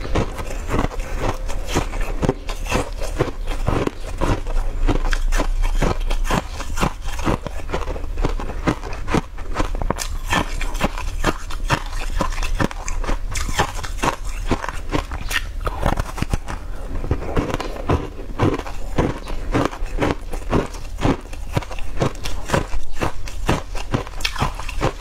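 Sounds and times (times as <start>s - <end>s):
crunchy chewing: 0.0s - 25.0s
wet mouth sounds: 0.0s - 25.0s.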